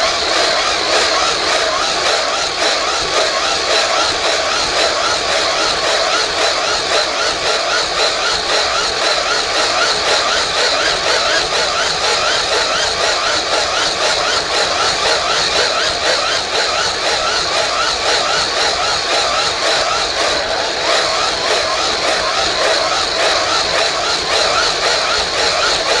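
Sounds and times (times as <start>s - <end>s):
hand-cranked blower whirring: 0.0s - 26.0s.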